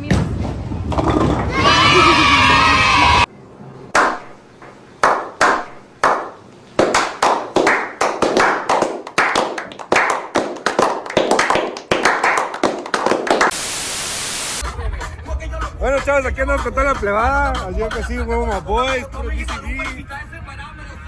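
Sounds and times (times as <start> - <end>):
hand claps: 5.0 - 13.5
static-like hiss: 13.5 - 14.6.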